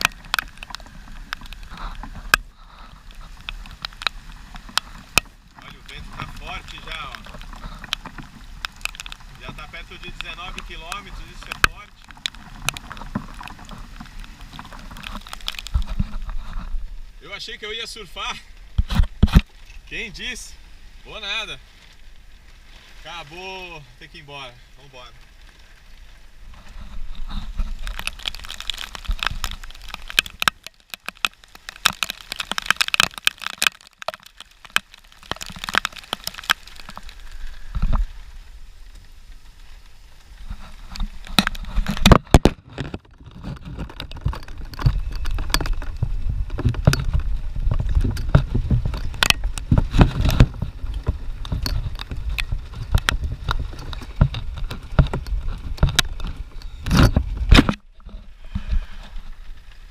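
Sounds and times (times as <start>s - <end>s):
rain crackles on microphone: 0.0s - 59.9s
wind buffeting microphone: 40.4s - 57.8s.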